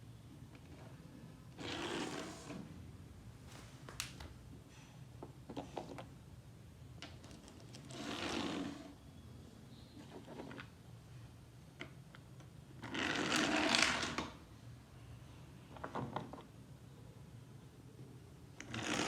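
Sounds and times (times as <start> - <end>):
toy motor whirring: 18.6 - 19.0.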